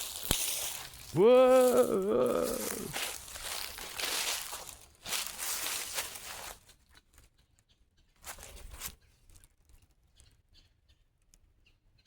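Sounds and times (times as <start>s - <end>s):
rustling in dry leaves: 0.0s - 7.3s, 8.2s - 9.8s.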